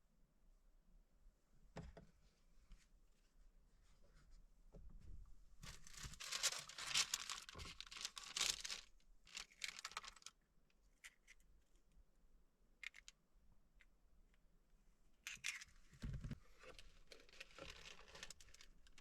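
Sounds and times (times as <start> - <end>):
packaging crinkling and rustling: 5.6 - 10.3, 16.6 - 19.0.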